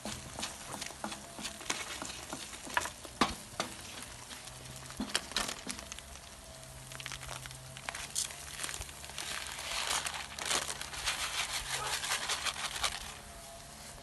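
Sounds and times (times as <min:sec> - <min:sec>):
plastic packet crinkling: 0:04.2 - 0:13.3
plastic packet tearing: 0:04.8 - 0:13.2.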